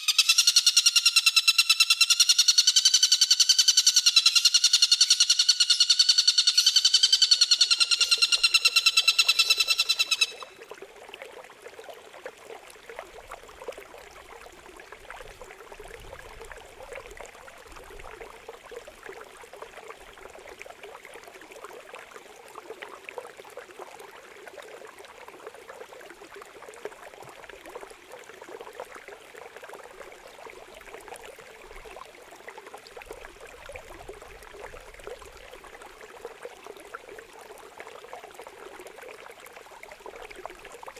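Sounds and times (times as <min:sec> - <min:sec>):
songbird buzzing call: 0:00.0 - 0:10.5
water trickling: 0:06.6 - 0:40.9.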